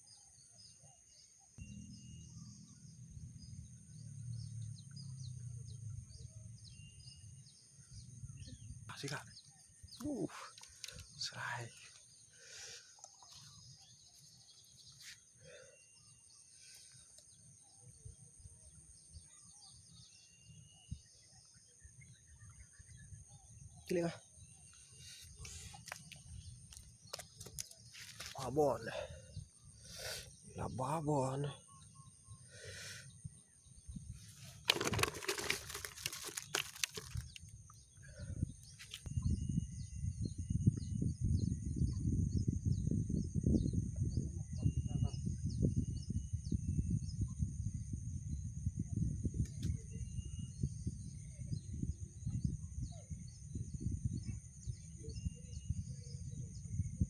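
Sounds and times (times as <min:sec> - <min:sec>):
bird chirps: 0:00.0 - 0:47.8, 0:49.4 - 0:57.0
noisy rustling: 0:34.3 - 0:37.4.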